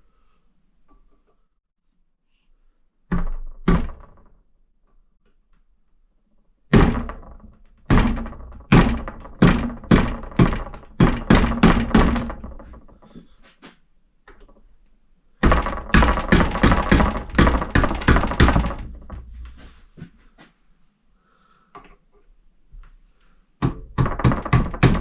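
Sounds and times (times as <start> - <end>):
hammer knocking on metal: 7.9 - 12.8, 15.4 - 19.3, 23.6 - 25.0.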